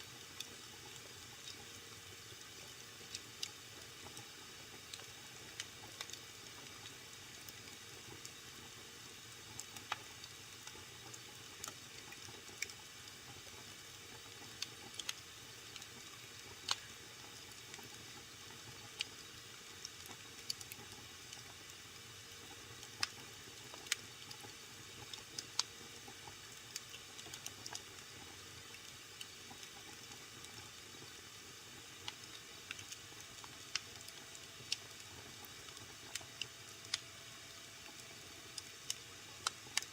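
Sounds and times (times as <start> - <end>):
wood fire crackling: 22.4 - 27.8, 28.6 - 37.1, 37.8 - 39.9.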